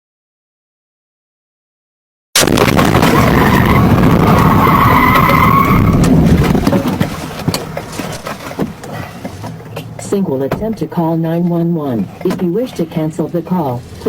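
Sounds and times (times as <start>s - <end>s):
tyres skidding and squealing: 2.9s - 14.0s.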